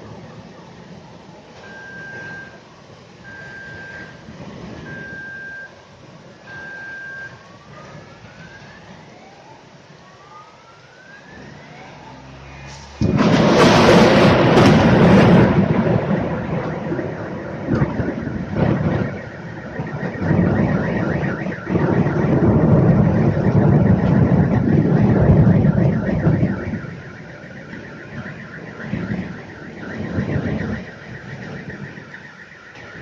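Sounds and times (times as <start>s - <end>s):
car alarm beeping and whooping: 1.7s - 2.6s, 3.3s - 4.2s, 4.8s - 5.8s, 6.4s - 7.4s, 13.2s - 33.0s
thunder crash and rumble: 3.5s - 5.3s, 12.8s - 33.0s.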